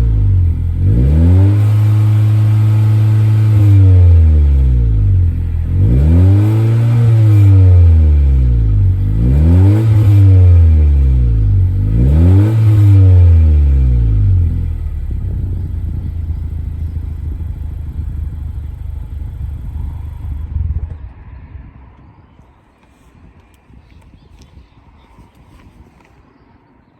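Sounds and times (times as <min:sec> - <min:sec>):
car engine revving and idling: 0:00.0 - 0:21.1.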